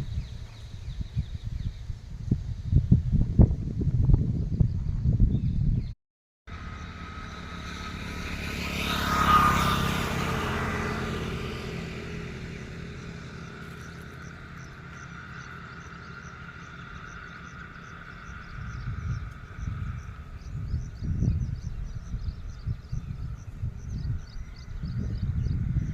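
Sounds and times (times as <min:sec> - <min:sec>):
vehicle engine passing by: 0:06.5 - 0:25.9.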